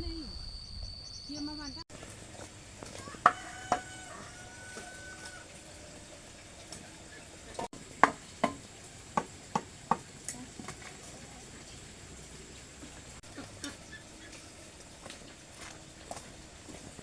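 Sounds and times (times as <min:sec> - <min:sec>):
sharp knocks: 0:08.0 - 0:10.1.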